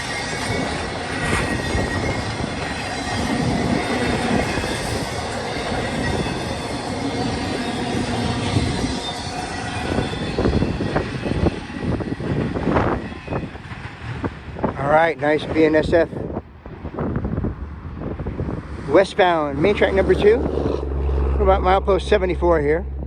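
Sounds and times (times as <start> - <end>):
wheel flange squeal: 0.0 - 13.8
freight train rolling past: 0.0 - 23.0
wind buffeting microphone: 0.0 - 23.0.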